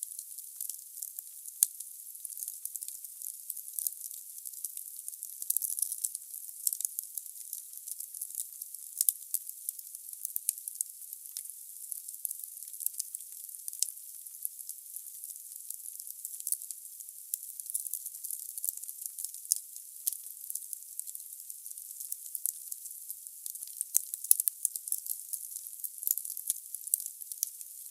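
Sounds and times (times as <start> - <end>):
logs crackling in fireplace: 25.9 - 27.9.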